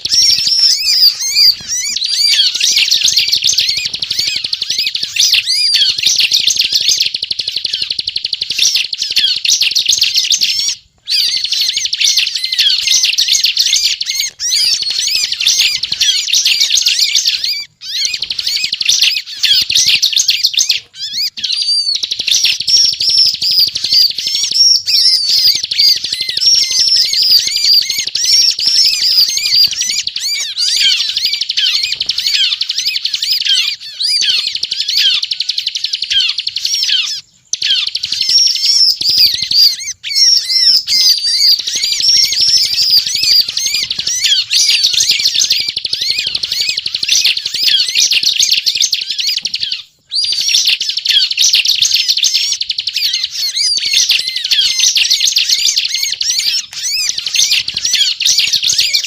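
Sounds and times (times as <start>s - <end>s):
bird singing high chirping notes: 0.0s - 59.0s.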